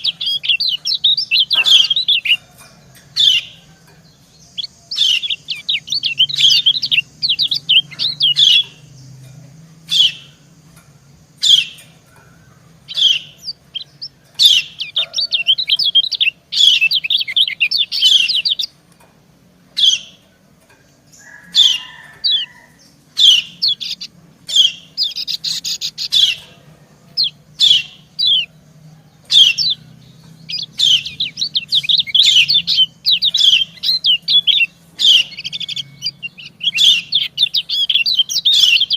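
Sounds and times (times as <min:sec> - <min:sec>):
bird chirping: 0:00.0 - 0:38.9.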